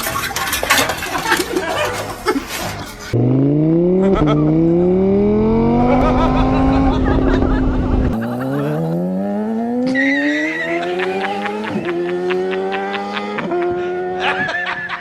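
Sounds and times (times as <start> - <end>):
engine accelerating through gears: 3.1 - 14.2.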